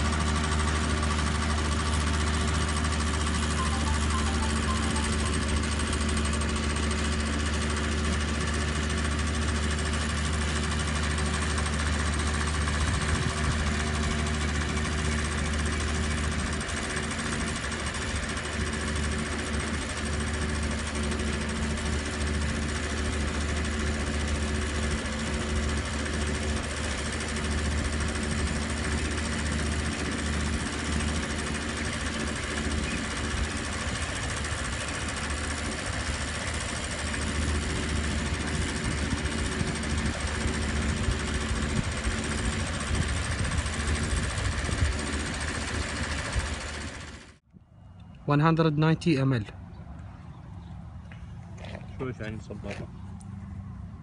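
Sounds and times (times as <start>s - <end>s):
small car engine running: 0.0s - 47.4s.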